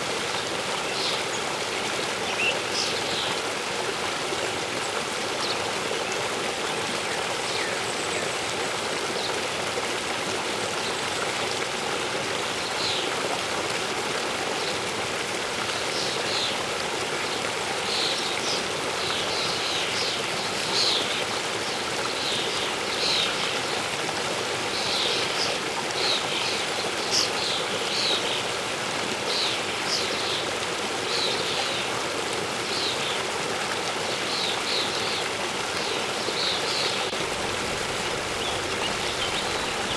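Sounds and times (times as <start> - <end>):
waterfall rushing: 34.3 - 39.9
birds chirping: 36.4 - 39.9.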